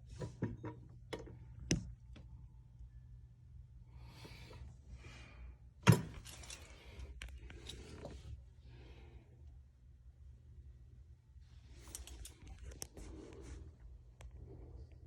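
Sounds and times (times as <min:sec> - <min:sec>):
steady low hum: 0:00.0 - 0:15.0
handling rustling and clatter: 0:05.9 - 0:08.4, 0:11.7 - 0:13.2.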